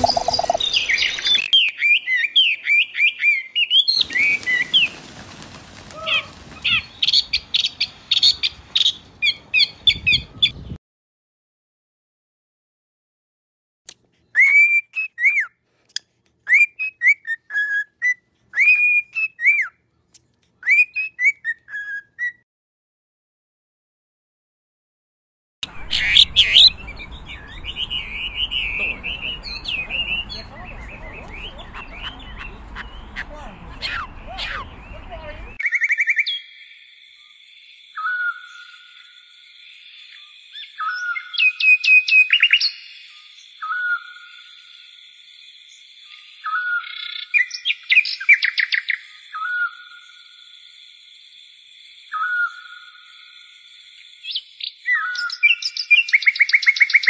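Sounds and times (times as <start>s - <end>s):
high-pitched background tone: 0.0s - 1.5s
bird trill: 0.0s - 5.1s, 25.6s - 57.0s
bird singing whistled phrase: 38.0s - 38.7s, 43.6s - 44.2s, 52.1s - 52.7s, 54.3s - 57.0s.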